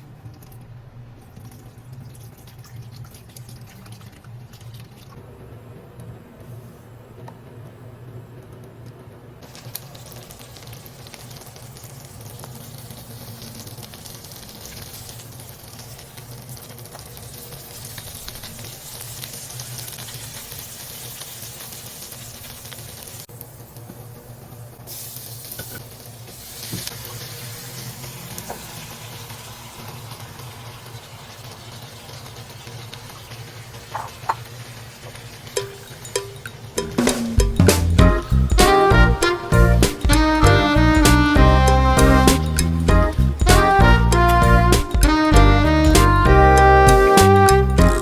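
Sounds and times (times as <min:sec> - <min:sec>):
food sizzling in hot oil: 0:09.4 - 0:23.8, 0:24.8 - 0:40.2
steady low hum: 0:37.2 - 0:47.1.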